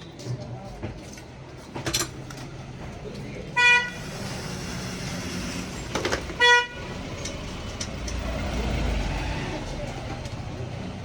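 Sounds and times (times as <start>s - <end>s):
vehicle horn beeps: 3.6s - 4.1s, 6.4s - 6.9s.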